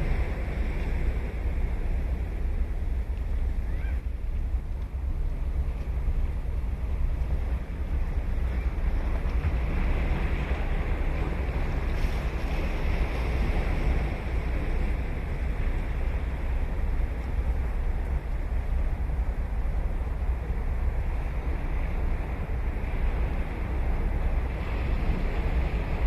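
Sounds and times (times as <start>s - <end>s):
ocean surf on beach: 0.0s - 26.0s
wind rumble on microphone: 0.0s - 26.0s.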